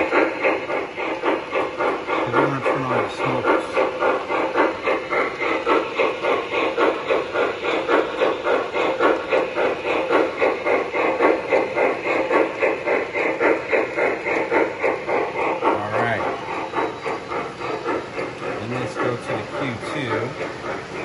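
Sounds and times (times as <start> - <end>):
recorded steam locomotive chuffing: 0.0 - 21.0.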